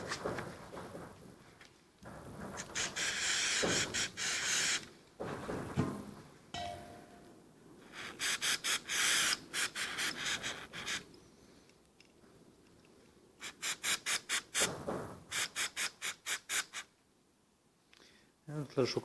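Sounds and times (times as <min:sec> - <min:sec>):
short metallic ring: 0:06.6 - 0:07.3
aerosol spray hissing: 0:13.4 - 0:14.7.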